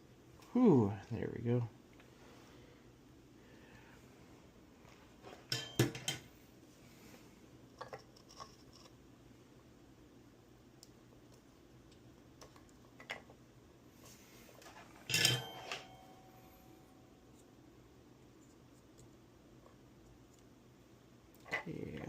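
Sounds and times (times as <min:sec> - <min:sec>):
low steady hum: 0:00.0 - 0:22.0
metallic clatter with ring: 0:05.5 - 0:06.2, 0:15.0 - 0:16.5.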